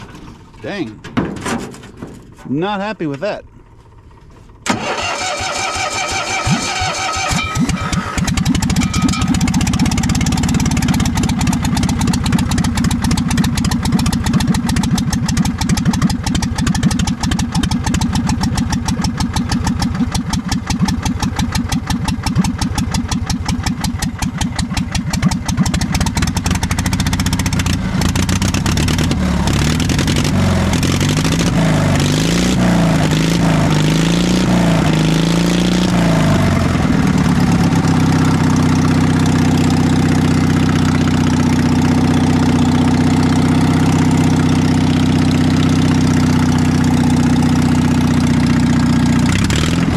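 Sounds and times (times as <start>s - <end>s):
engine rough cold idle: 3.4s - 32.1s, 36.1s - 49.9s
starter motor cranking: 4.6s - 11.8s.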